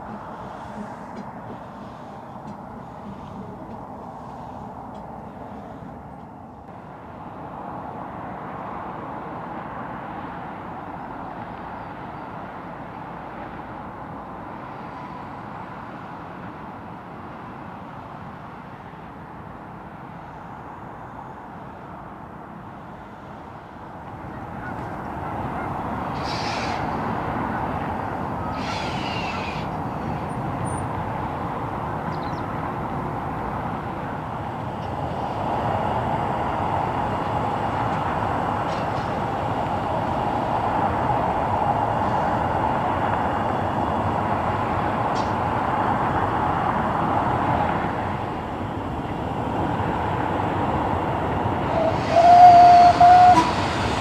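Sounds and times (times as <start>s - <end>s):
train rumbling: 0.0s - 54.0s
high hissing streaks: 28.5s - 30.2s.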